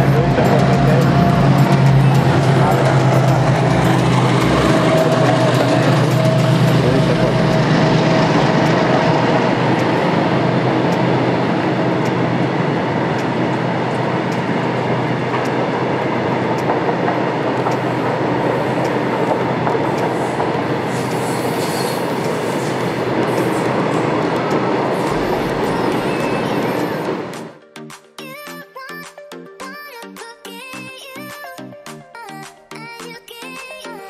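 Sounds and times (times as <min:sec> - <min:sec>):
wheels clicking over rail joints: 0:00.0 - 0:27.5
train wheels rumbling on rail: 0:00.0 - 0:27.6
wheel squeal: 0:19.9 - 0:26.9.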